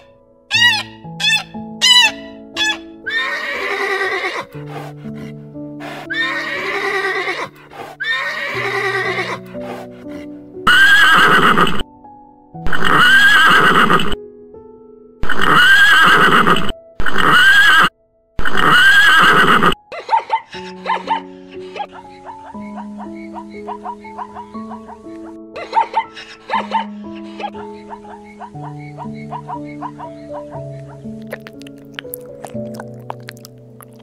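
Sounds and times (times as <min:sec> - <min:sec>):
soft piano music: 0:00.0 - 0:15.8, 0:16.6 - 0:17.1, 0:19.6 - 0:34.0
horse whinnying: 0:00.5 - 0:04.6, 0:06.0 - 0:09.4, 0:10.7 - 0:11.8, 0:12.6 - 0:14.2, 0:15.2 - 0:19.8.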